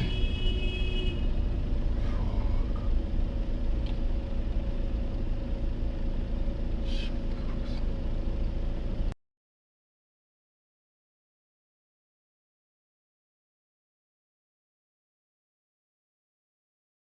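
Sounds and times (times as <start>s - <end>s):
vehicle driving rumble: 0.0s - 9.2s.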